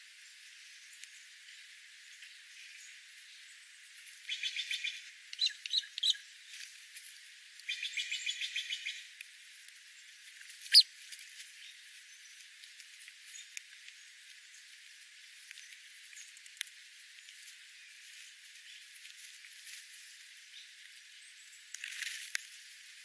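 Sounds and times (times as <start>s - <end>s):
bird chirping: 4.2s - 6.2s, 7.7s - 9.1s, 10.7s - 10.9s
bird trilling: 10.7s - 10.9s.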